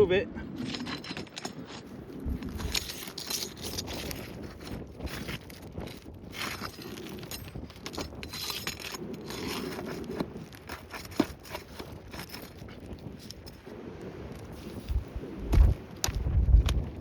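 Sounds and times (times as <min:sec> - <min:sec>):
shingles scraping and tearing: 0:00.5 - 0:13.6.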